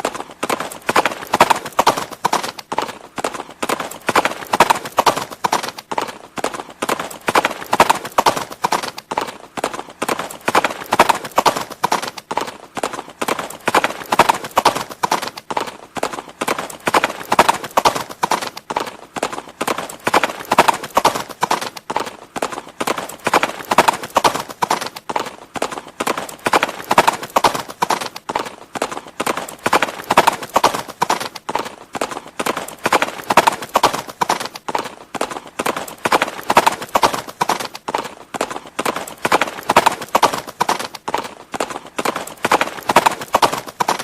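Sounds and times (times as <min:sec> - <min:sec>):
horse hooves clip-clopping: 0:00.0 - 0:44.0.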